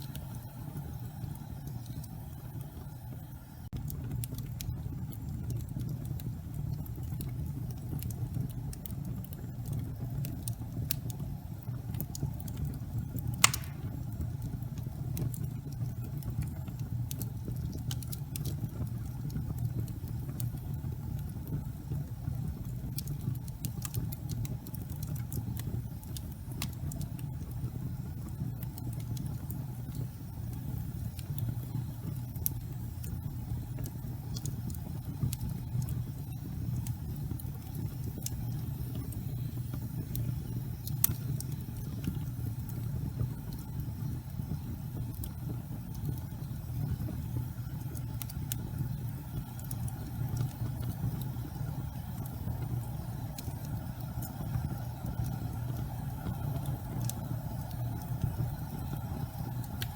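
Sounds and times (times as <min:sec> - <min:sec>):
fire crackling in fireplace: 0:00.0 - 0:59.9
sharp pop of fire: 0:13.4 - 0:14.2.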